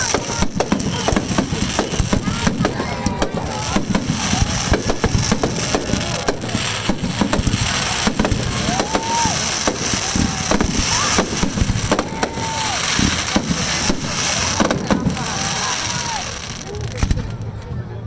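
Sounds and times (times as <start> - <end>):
fireworks crackling and popping: 0.0 - 17.8.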